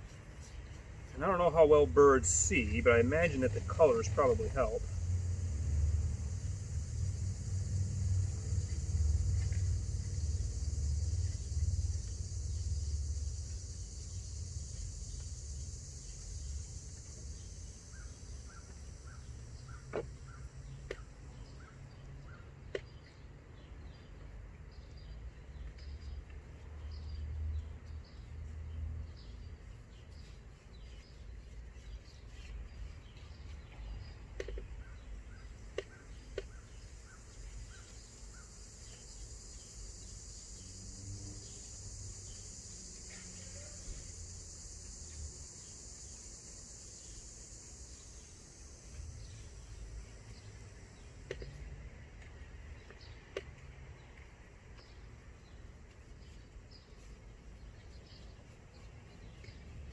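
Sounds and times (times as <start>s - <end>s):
low rumble: 3.0s - 13.4s.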